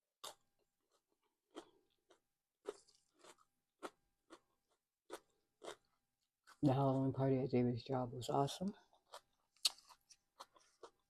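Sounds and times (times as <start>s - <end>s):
crunchy chewing of salad: 0.2s - 6.6s, 8.8s - 11.0s.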